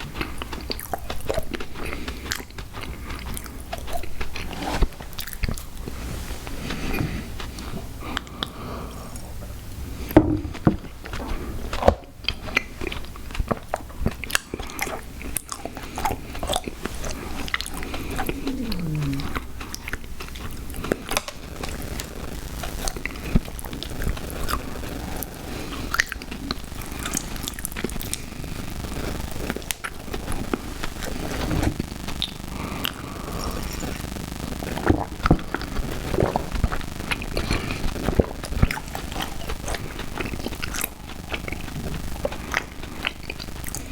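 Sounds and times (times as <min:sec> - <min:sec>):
chewing crunchy cereal: 0:00.0 - 0:43.9
mouth clicks: 0:17.9 - 0:19.8.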